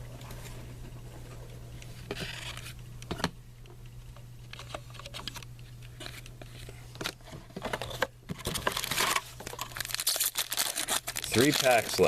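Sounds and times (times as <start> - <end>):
steady low hum: 0.0 - 12.0
card wrappers rustling: 7.6 - 12.0.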